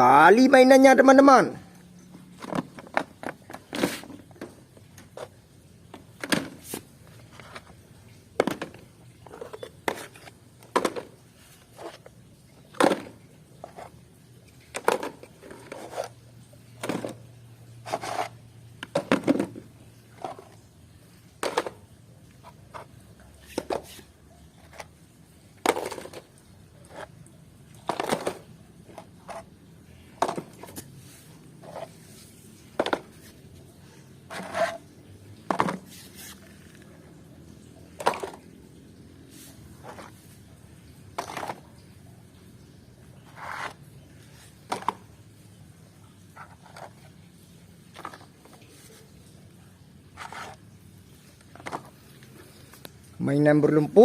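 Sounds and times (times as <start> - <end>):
plastic toys clattering: 2.2 - 20.7, 21.3 - 25.0, 25.6 - 37.2, 37.9 - 38.6, 41.0 - 41.8, 43.2 - 45.2, 47.8 - 49.2, 50.1 - 52.9.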